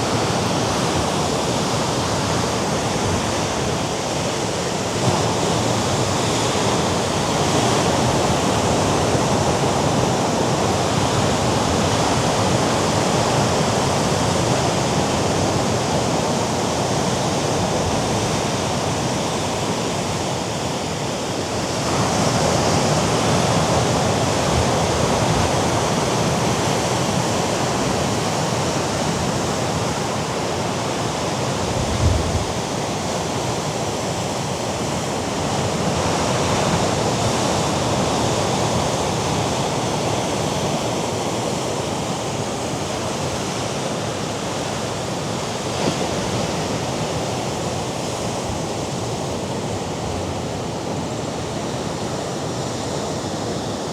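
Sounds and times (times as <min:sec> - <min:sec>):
wind: 0:00.0 - 0:53.9.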